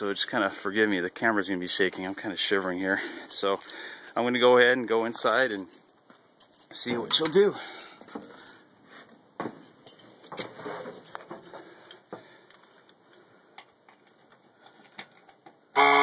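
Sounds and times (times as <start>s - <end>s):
keys jingling: 9.7s - 10.5s
warning buzzer: 15.8s - 16.0s.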